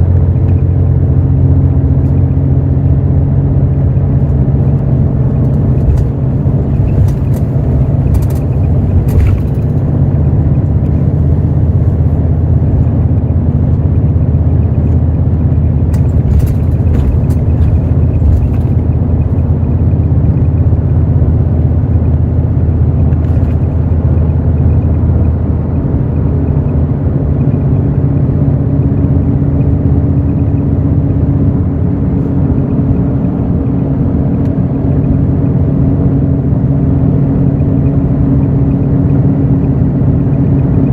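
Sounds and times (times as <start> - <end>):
bus diesel engine running: 0.0 - 40.9
light clicks and rattles: 4.7 - 11.0, 15.9 - 19.6.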